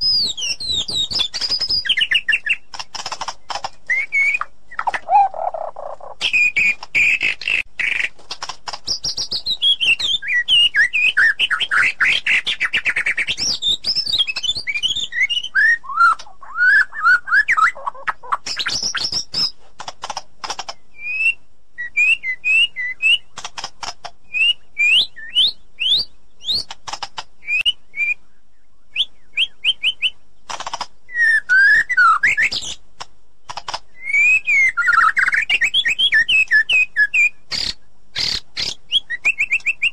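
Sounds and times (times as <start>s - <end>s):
bird singing whistled song: 0.0s - 2.7s, 3.8s - 8.1s, 8.8s - 19.6s, 20.8s - 23.4s, 24.2s - 26.7s, 27.4s - 30.2s, 31.1s - 32.8s, 33.6s - 39.9s
bird clicks: 1.0s - 10.1s, 18.4s - 20.8s, 23.3s - 24.4s, 26.4s - 27.7s, 30.4s - 31.6s, 32.4s - 34.0s, 37.5s - 39.9s.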